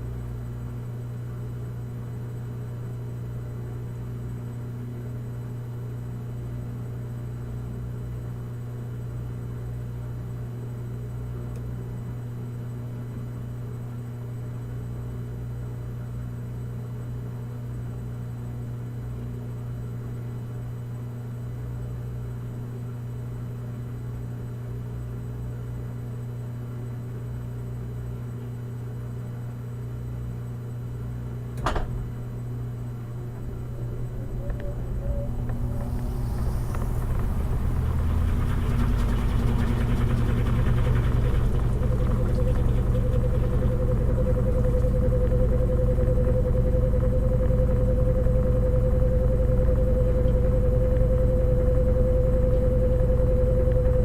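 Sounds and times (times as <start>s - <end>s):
washing machine running: 31.1s - 54.0s
washing machine click: 31.6s - 32.1s.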